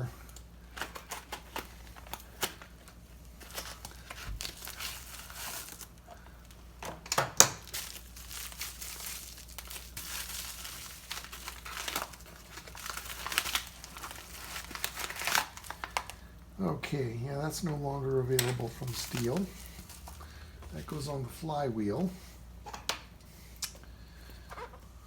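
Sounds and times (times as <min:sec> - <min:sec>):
wrapping crinkling and tearing: 0:00.2 - 0:06.8, 0:07.4 - 0:16.4, 0:17.6 - 0:21.2.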